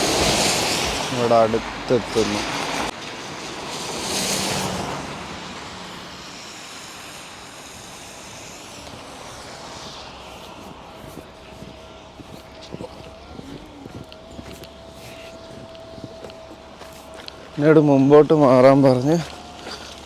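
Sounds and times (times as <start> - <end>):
bus engine and tyre noise: 0.0 - 20.0
faint steady whine: 5.5 - 20.0.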